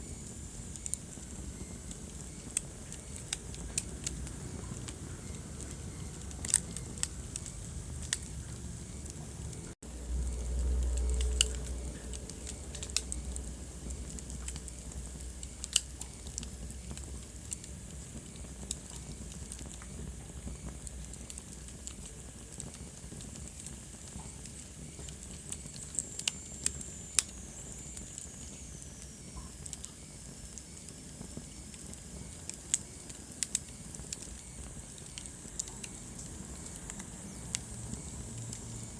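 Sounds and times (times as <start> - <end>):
wood fire crackling and popping: 0.0 - 38.9
low rumble: 3.6 - 15.4.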